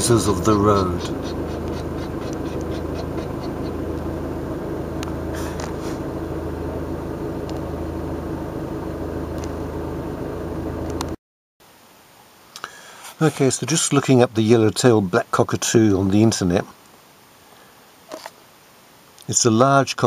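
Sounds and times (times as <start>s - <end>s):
van engine running: 0.0s - 11.2s
light regular ticking: 0.1s - 4.1s.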